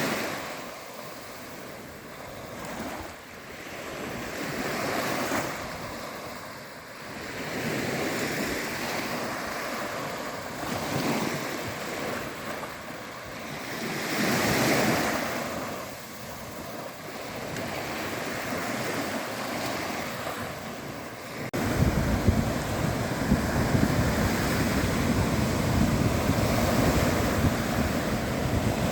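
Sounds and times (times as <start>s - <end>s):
sea waves breaking on shore: 0.0s - 28.9s.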